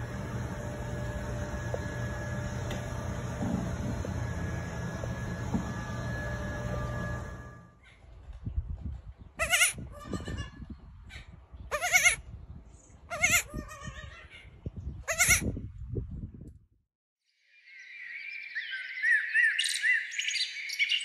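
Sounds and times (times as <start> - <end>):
baby goat bleating: 9.4 - 10.6, 11.7 - 12.2, 13.1 - 14.4, 15.0 - 15.6.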